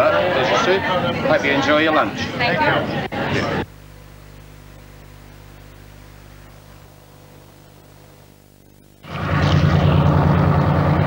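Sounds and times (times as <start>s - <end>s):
faint low hum: 0.0s - 11.0s
train engine drone: 6.2s - 11.0s.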